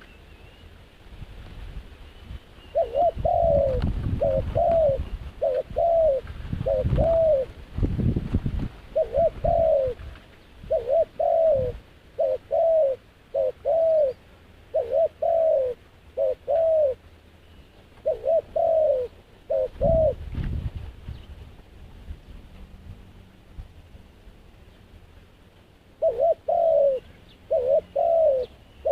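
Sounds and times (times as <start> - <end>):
dove cooing: 2.7 - 7.6, 8.9 - 17.0, 18.0 - 20.3, 26.0 - 28.9.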